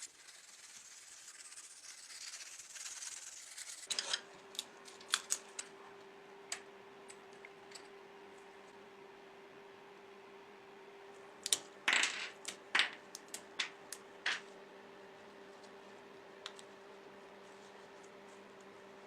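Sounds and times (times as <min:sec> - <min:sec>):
rubbing on toy car parts: 0:00.0 - 0:03.9
faint steady hum: 0:00.0 - 0:19.0.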